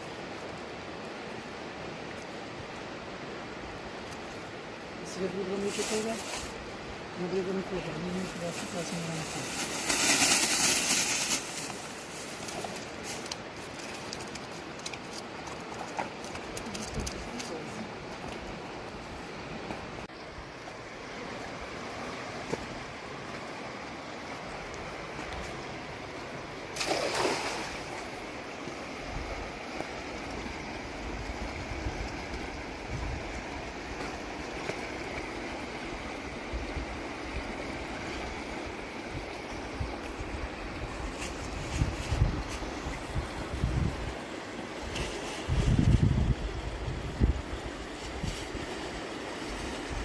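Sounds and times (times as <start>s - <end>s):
rushing river water: 0.0s - 50.0s
wind rumble on microphone: 16.3s - 20.5s, 29.0s - 50.0s
river water rushing: 17.4s - 41.1s
water splash: 26.7s - 28.2s.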